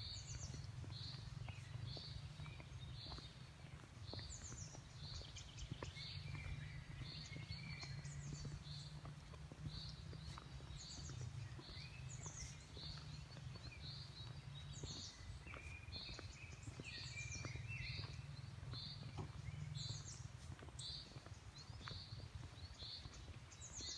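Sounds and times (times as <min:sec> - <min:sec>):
forest birds chirping: 0:00.0 - 0:23.9.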